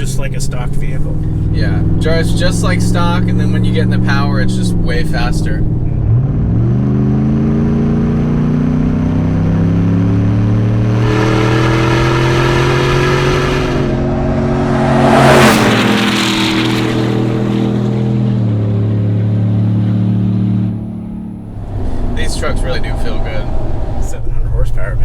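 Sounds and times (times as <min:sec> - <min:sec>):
truck engine under throttle: 0:00.0 - 0:25.0
whoosh of truck passing: 0:09.9 - 0:25.0.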